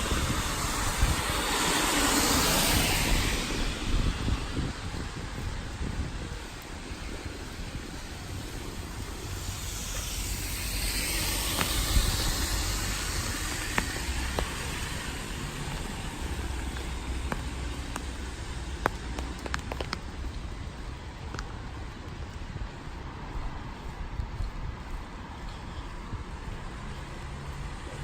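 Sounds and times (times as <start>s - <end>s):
tyres hissing through water: 0.0s - 4.4s, 6.8s - 19.1s
steady rainfall: 0.0s - 24.0s.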